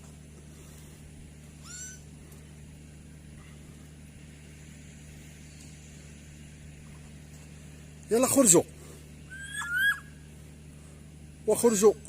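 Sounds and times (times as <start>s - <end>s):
low hum: 0.0s - 12.0s
parrot rising whistle: 1.6s - 2.0s, 9.3s - 10.2s.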